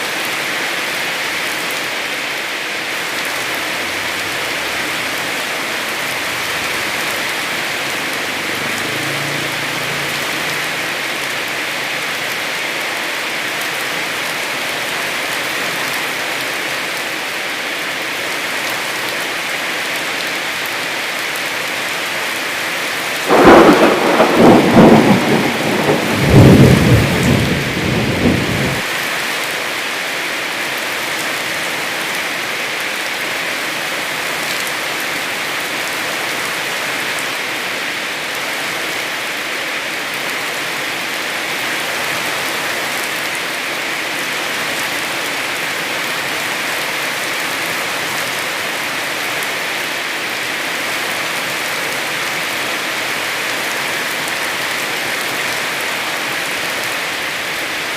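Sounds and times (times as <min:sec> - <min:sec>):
heavy rain falling: 0:00.0 - 0:57.9
rumbling thunderclap: 0:23.3 - 0:28.8.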